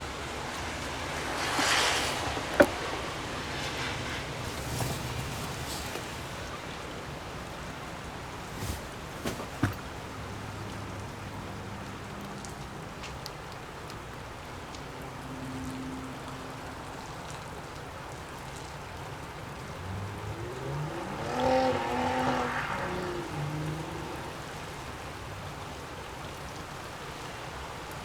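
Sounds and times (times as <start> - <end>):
traffic engine hum: 0.0 - 12.3.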